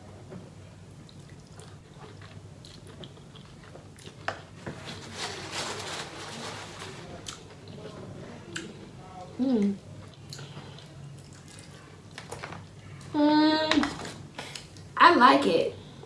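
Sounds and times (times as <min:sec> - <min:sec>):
person chewing seafood: 0:01.1 - 0:04.5, 0:09.6 - 0:12.8.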